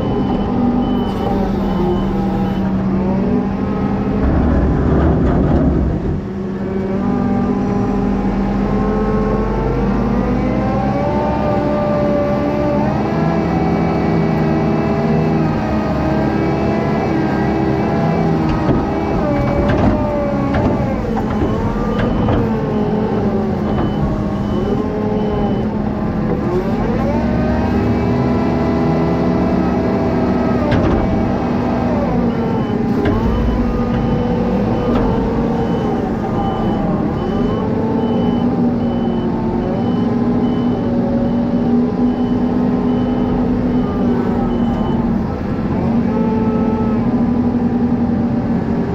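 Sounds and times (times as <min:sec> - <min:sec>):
reversing alarm beeping: 0:00.0 - 0:02.9, 0:16.3 - 0:26.0, 0:30.0 - 0:45.3
diesel machinery engine revving: 0:00.0 - 0:48.9.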